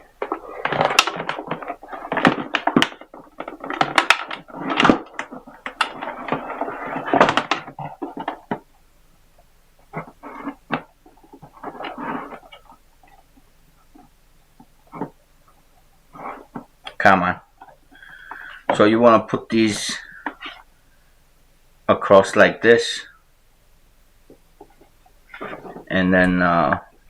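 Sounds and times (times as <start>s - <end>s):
battery cables clicking and rattling: 0.0s - 20.6s.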